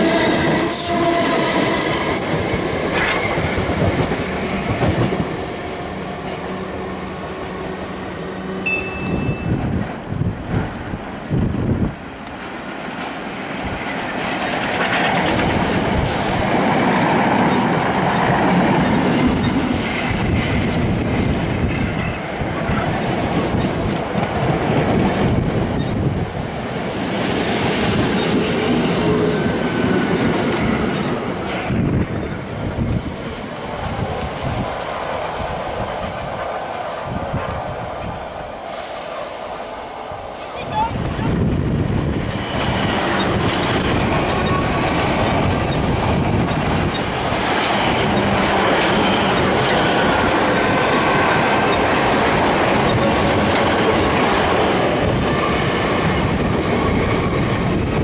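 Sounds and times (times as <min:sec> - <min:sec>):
train wheels rumbling on rail: 0:00.0 - 0:58.0
wheels clacking over rail joints: 0:12.2 - 0:16.6, 0:42.4 - 0:58.0.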